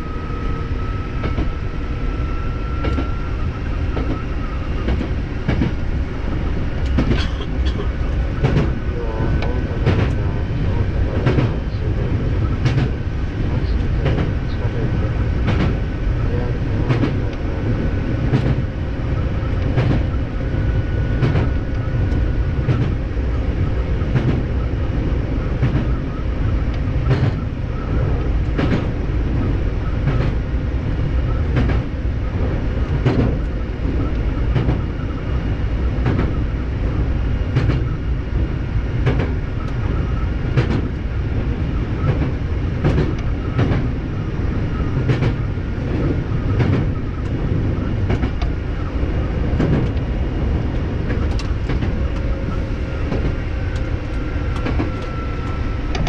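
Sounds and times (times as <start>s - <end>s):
train rumbling: 0.0s - 56.0s.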